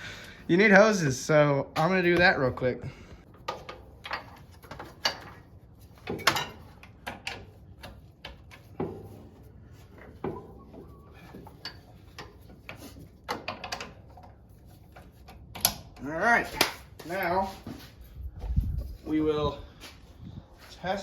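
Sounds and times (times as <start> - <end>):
hose couplers clicking and knocking: 3.3 - 9.2, 9.9 - 17.1.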